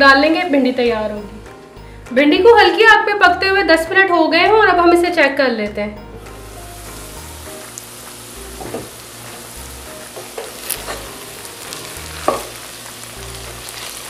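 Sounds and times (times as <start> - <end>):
okra sizzling in oil: 6.2 - 14.0.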